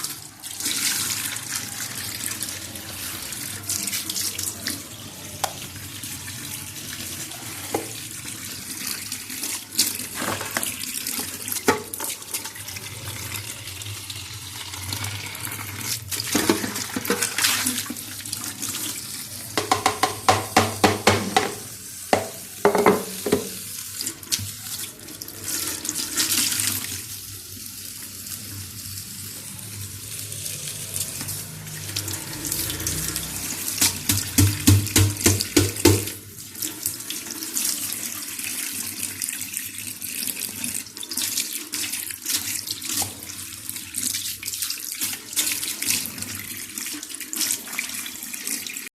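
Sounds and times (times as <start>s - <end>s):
tap water running into sink: 0.0s - 27.2s, 30.1s - 48.9s
objects clattering and knocking: 10.1s - 10.8s, 16.3s - 17.6s.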